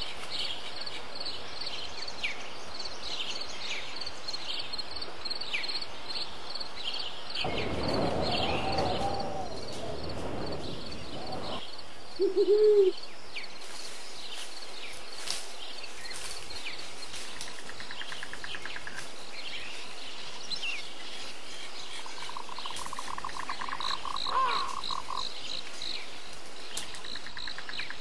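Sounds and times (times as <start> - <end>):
bird low arched notes: 7.4 - 13.0.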